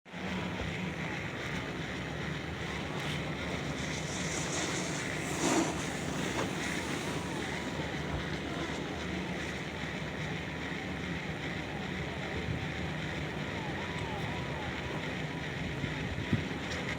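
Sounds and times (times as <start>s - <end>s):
low even hum: 0.5s - 10.2s.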